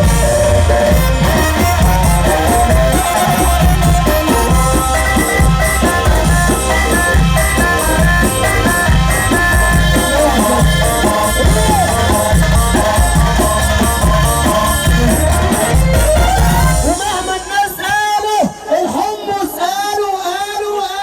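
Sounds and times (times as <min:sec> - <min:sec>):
heavy bass beat: 0:00.0 - 0:17.5
synth melody: 0:00.0 - 0:17.8.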